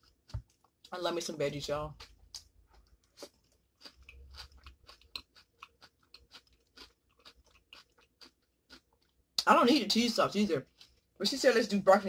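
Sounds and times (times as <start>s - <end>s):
chewing crunches: 1.9s - 9.5s, 10.6s - 11.2s.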